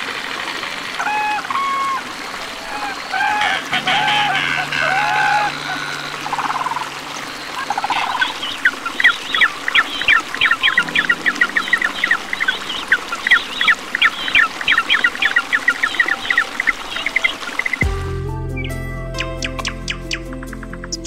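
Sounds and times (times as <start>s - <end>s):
penguins calling: 1.0s - 17.8s.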